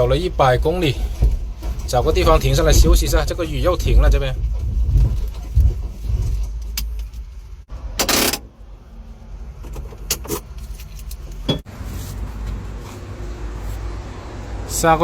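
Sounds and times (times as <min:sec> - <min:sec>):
wind on microphone: 0:02.1 - 0:06.5.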